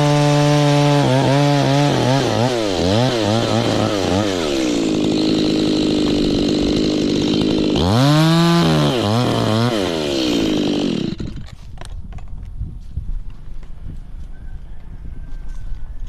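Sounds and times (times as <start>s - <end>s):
chainsaw revving: 0.0s - 11.6s.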